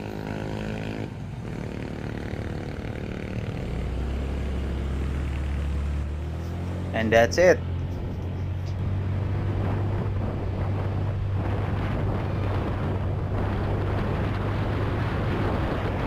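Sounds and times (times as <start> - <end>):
scooter engine hum: 0.0 - 16.0
wind buffeting microphone: 7.8 - 16.0.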